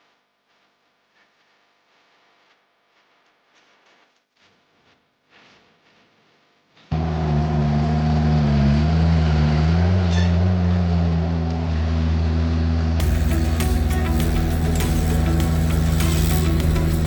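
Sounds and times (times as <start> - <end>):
engine running steadily: 12.9 - 17.0.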